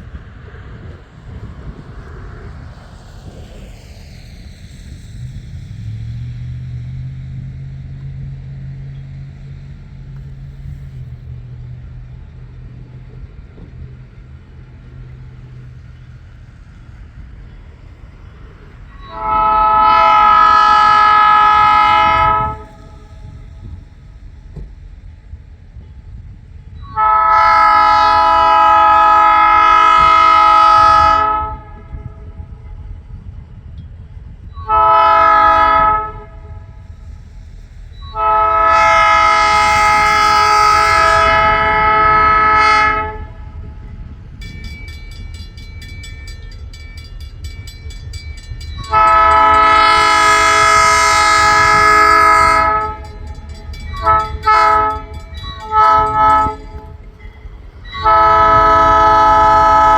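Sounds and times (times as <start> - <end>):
low rumble of passing train: 0.0 - 59.9
locomotive air horn blasts: 18.9 - 23.4, 26.8 - 32.8, 34.5 - 36.8, 38.0 - 43.8, 48.8 - 57.1, 57.8 - 59.9
locomotive bell ringing: 37.9 - 59.9.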